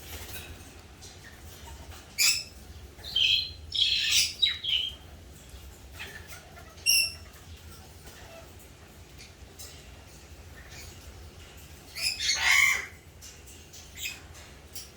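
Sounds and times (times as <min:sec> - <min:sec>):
parrot squawking: 0:12.0 - 0:13.0.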